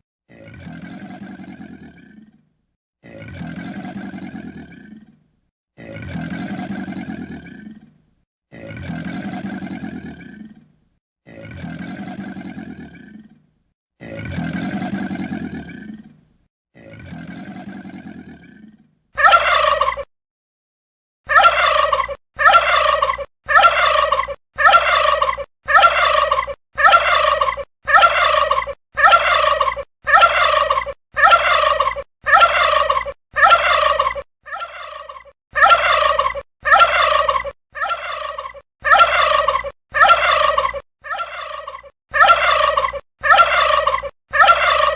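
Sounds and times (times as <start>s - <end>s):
gobble-like bird call: 19.2s - 20.1s, 21.3s - 44.9s.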